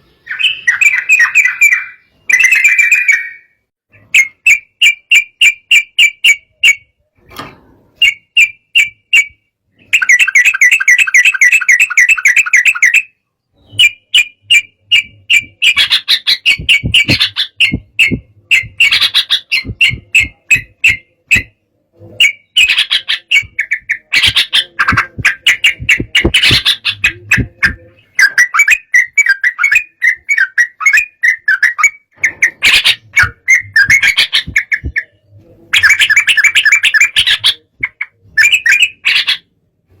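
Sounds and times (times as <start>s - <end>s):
bird singing bubbly chirps: 22.2s - 39.0s.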